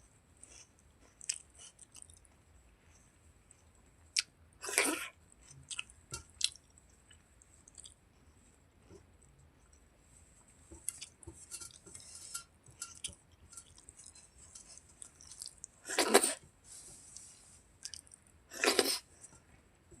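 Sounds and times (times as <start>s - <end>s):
wet mouth clicks and chewing: 0.5s - 2.3s, 4.2s - 8.0s, 17.8s - 19.0s.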